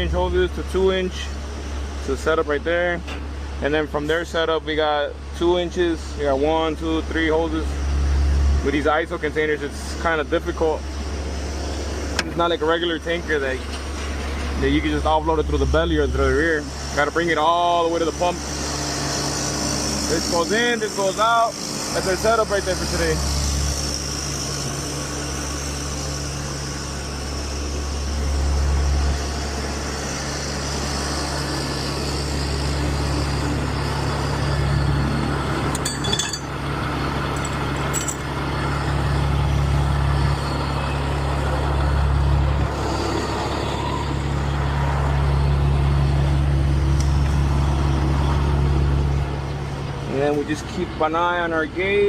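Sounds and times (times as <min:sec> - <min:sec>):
diesel engine running: 0:00.0 - 0:52.0
metallic clinks: 0:35.7 - 0:36.6, 0:37.3 - 0:38.3.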